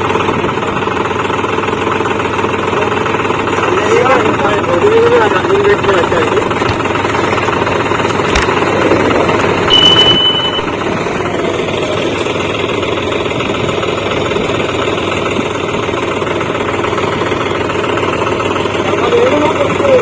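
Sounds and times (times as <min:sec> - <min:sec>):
tractor diesel engines running: 0:00.0 - 0:20.0
brief high-pitched tone: 0:09.7 - 0:10.8.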